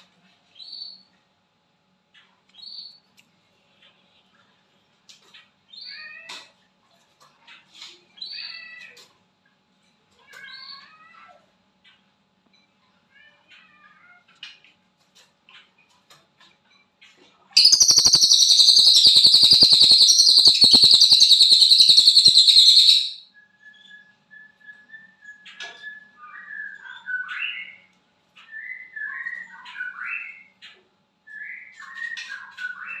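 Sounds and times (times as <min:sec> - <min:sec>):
bird thin whistle: 0:17.6 - 0:23.1
bird chirping: 0:17.6 - 0:23.2
songbird buzzing trill: 0:17.6 - 0:23.2.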